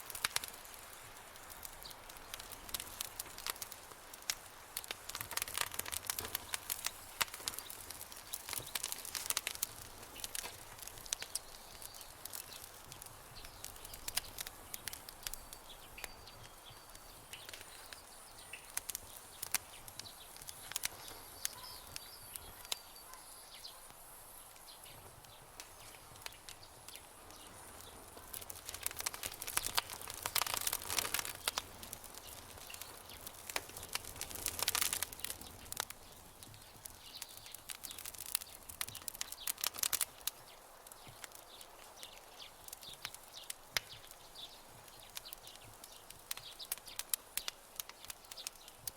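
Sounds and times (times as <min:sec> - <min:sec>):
campfire crackling and popping: 0:00.0 - 0:48.9
faint high chirping: 0:21.0 - 0:23.9.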